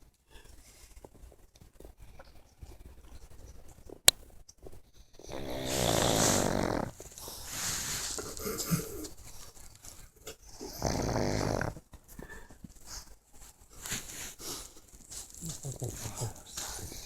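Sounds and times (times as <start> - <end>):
dog snoring with buzzing flutter: 5.2 - 7.1, 10.6 - 11.8.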